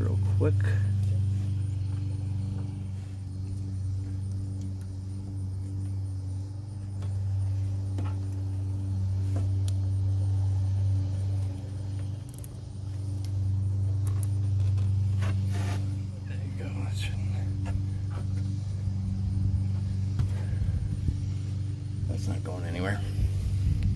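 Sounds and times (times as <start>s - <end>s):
steady low hum: 0.0s - 23.9s
zip tie clicking: 12.0s - 12.6s.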